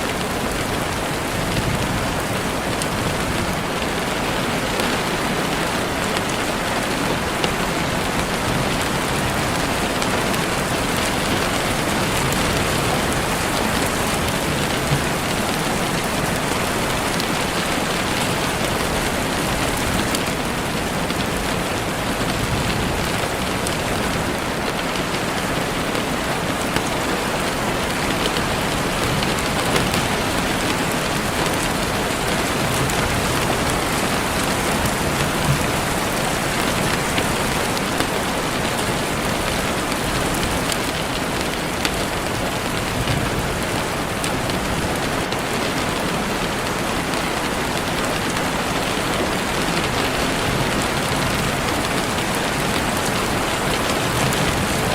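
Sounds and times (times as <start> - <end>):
heavy rain on leaves: 0.0 - 54.9.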